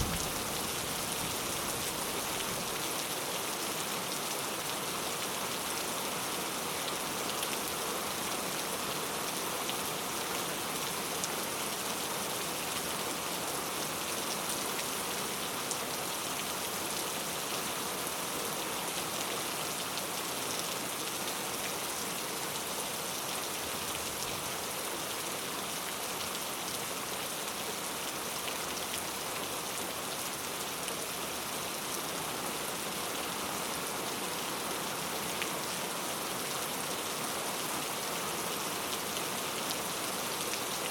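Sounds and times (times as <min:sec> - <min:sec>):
raindrops tapping: 0:00.0 - 0:01.1
steady rain hiss: 0:00.0 - 0:40.9.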